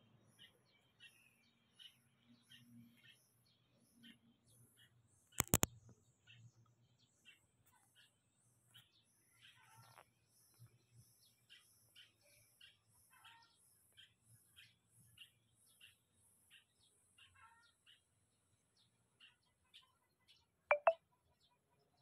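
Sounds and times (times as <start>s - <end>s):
faint bird chirps: 19.2s - 22.0s.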